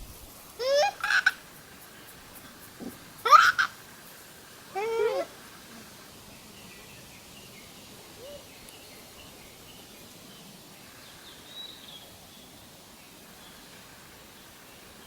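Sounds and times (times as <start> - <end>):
monkey coo call: 0.6 - 1.4, 2.8 - 3.8, 4.7 - 6.0, 8.1 - 8.5.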